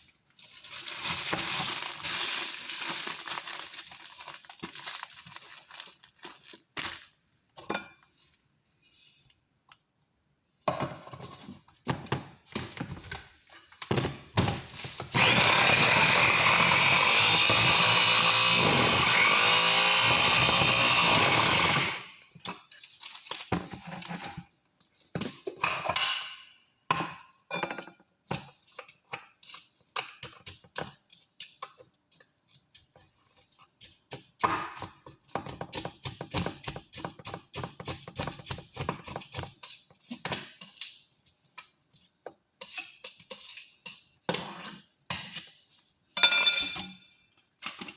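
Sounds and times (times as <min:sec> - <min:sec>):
kitchen knocks and clatter: 0:10.6 - 0:15.1, 0:25.1 - 0:31.9, 0:33.8 - 0:40.7, 0:46.2 - 0:47.9
electric blender running: 0:15.2 - 0:22.1.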